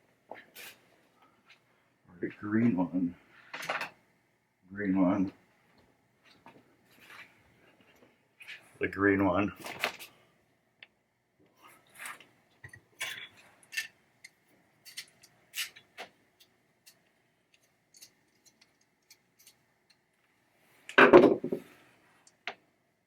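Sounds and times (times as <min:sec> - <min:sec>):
metal tools clicking and tapping: 0:12.6 - 0:20.1.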